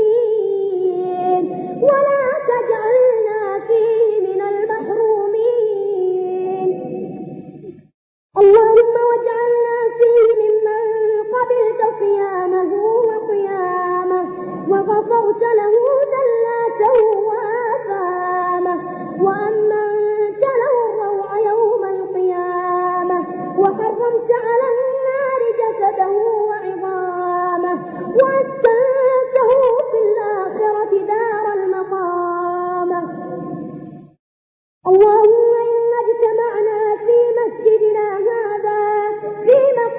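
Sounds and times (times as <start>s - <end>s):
person chanting unaccompanied: 8.5s - 33.8s.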